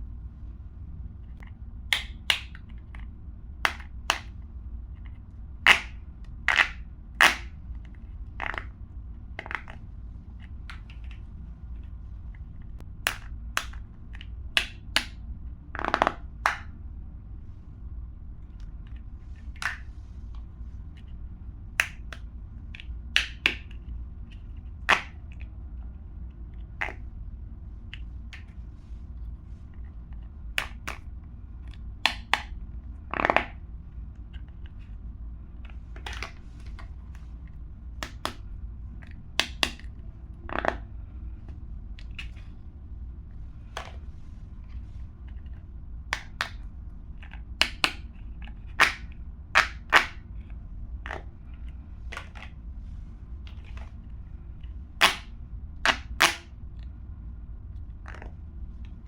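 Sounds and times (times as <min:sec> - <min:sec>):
steady low hum: 0:00.0 - 0:59.0
plastic pop tubes snapping: 0:01.9 - 0:02.7, 0:03.7 - 0:04.3, 0:05.7 - 0:07.5, 0:08.4 - 0:08.7, 0:13.0 - 0:15.2, 0:15.8 - 0:16.7, 0:21.8 - 0:22.2, 0:22.8 - 0:23.8, 0:24.9 - 0:25.2, 0:32.0 - 0:33.6, 0:38.0 - 0:38.4, 0:39.4 - 0:40.8, 0:46.1 - 0:46.6, 0:47.2 - 0:48.1, 0:48.7 - 0:50.2, 0:55.0 - 0:55.3, 0:55.9 - 0:56.5.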